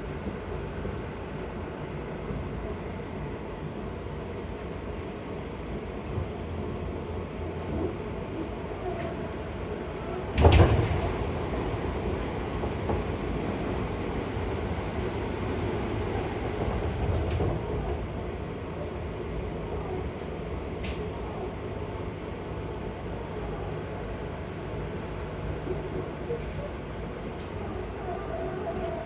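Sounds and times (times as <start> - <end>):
train wheels rumbling on track: 7.2 - 22.7.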